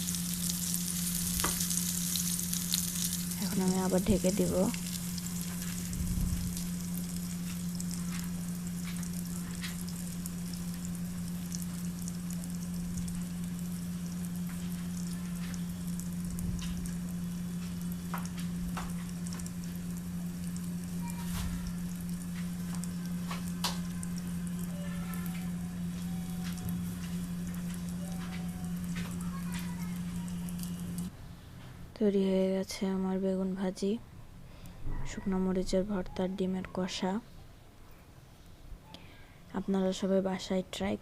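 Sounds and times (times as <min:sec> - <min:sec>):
vegetables sizzling in oil: 0:00.0 - 0:31.1
constant low hum: 0:00.0 - 0:41.0.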